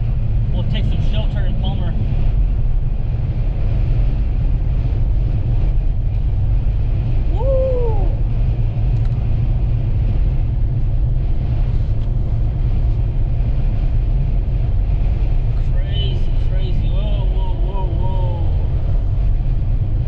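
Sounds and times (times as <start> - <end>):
vehicle driving rumble: 0.0 - 20.0
person whooping shout: 7.3 - 8.2, 17.4 - 18.6.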